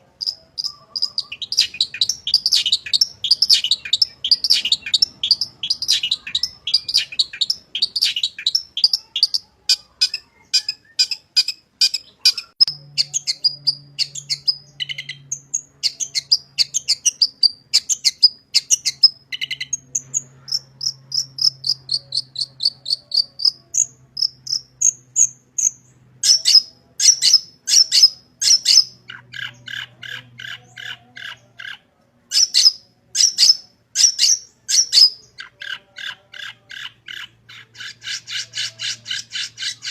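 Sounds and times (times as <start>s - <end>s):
harsh bird calls: 0.0s - 39.9s
bird singing sharp chirps: 0.2s - 31.4s.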